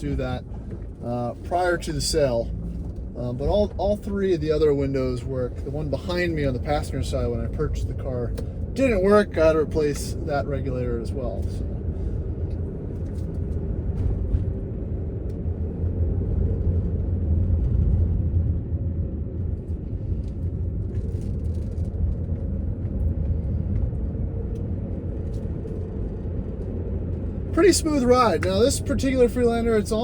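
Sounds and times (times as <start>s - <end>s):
engine and road rumble in car: 0.0s - 30.0s.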